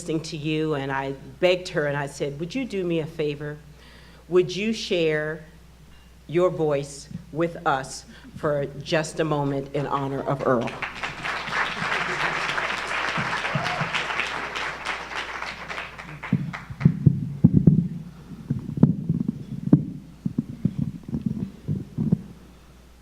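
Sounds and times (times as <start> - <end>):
audience applauding: 10.3 - 17.0
low thumps: 16.2 - 22.5.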